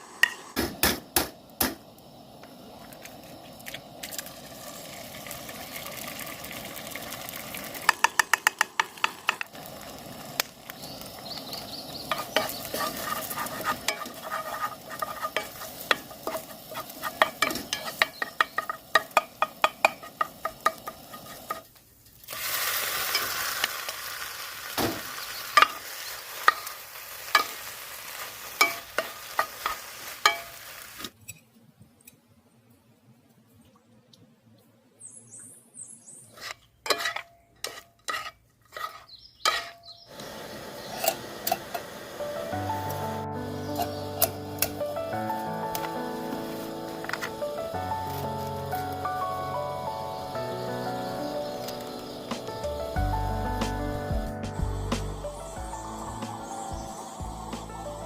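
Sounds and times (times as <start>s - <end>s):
batter sizzling in oil: 1.4s - 31.2s, 36.3s - 58.0s.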